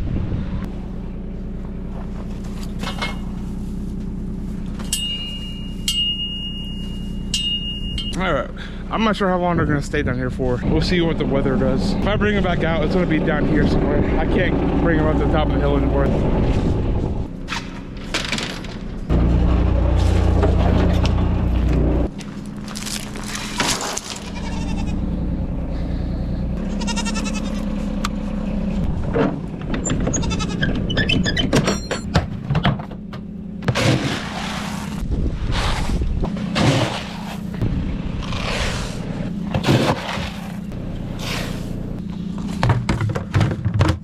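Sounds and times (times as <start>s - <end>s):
wind noise: 0.0s - 0.7s, 16.0s - 17.3s, 35.0s - 36.4s
goats bleating: 24.2s - 25.0s, 26.6s - 27.7s, 30.1s - 30.7s.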